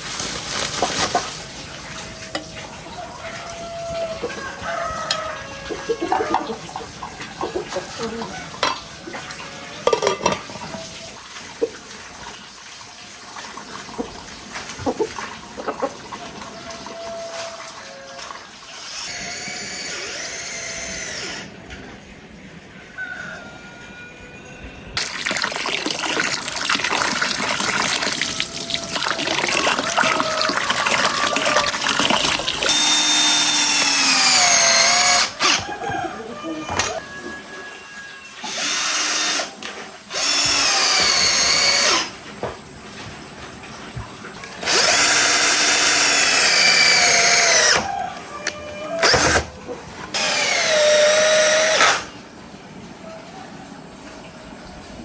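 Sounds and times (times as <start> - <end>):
power drill running: 18.7 - 21.5, 30.4 - 35.7, 38.4 - 42.1, 44.6 - 47.8, 49.0 - 49.5, 50.1 - 52.1.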